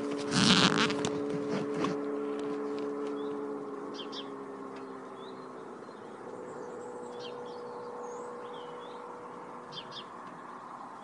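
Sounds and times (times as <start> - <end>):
engine hum: 0.0 - 11.0
small birds chirping: 3.1 - 11.0.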